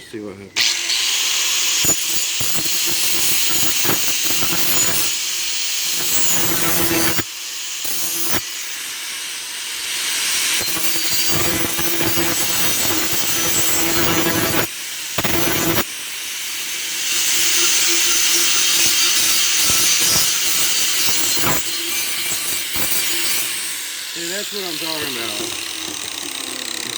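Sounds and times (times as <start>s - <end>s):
grinder motor whine: 0.1s - 26.9s
grinding disc on metal: 0.6s - 5.2s, 5.8s - 8.8s, 10.3s - 15.9s, 16.6s - 26.9s.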